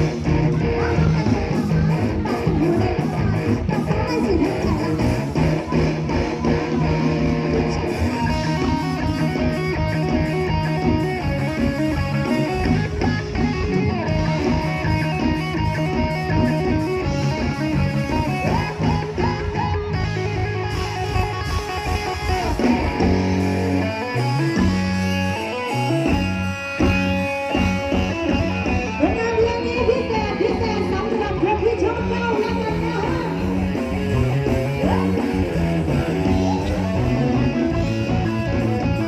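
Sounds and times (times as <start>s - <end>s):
bass guitar: 0.0s - 39.0s
electric guitar: 0.0s - 39.0s.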